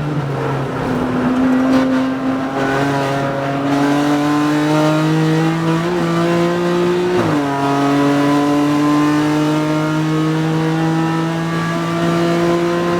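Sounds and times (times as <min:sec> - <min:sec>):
race car engine accelerating: 0:00.0 - 0:12.9.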